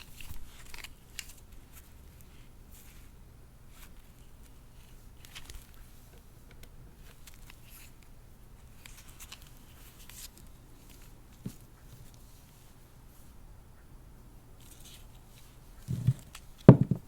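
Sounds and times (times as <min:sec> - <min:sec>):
handling rustles: 0:14.6 - 0:17.0.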